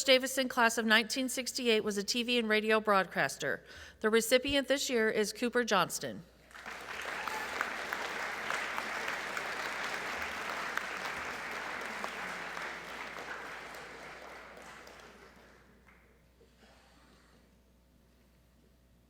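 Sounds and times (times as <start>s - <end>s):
audience applauding: 6.5s - 16.1s.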